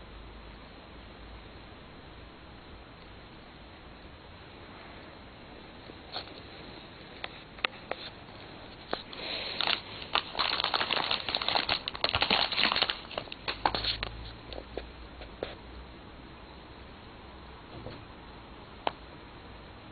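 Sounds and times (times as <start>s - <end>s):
plastic wrapper crinkling: 8.8s - 14.1s.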